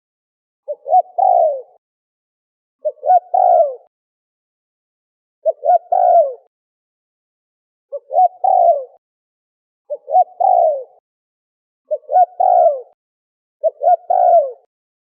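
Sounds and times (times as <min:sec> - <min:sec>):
dove cooing: 0:00.7 - 0:01.8, 0:02.8 - 0:03.9, 0:05.4 - 0:06.5, 0:07.9 - 0:09.0, 0:09.9 - 0:11.0, 0:11.9 - 0:13.0, 0:13.6 - 0:14.7.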